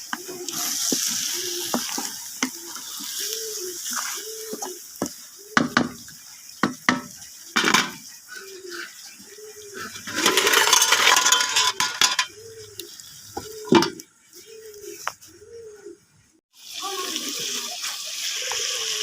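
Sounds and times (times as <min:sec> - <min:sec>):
metal utensils scraping a pot: 0:09.8 - 0:12.6.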